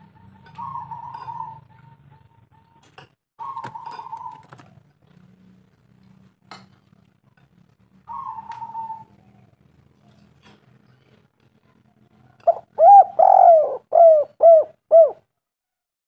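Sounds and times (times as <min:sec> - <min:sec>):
dove cooing: 0:00.0 - 0:02.8, 0:03.4 - 0:04.8, 0:08.1 - 0:09.6, 0:12.4 - 0:15.2.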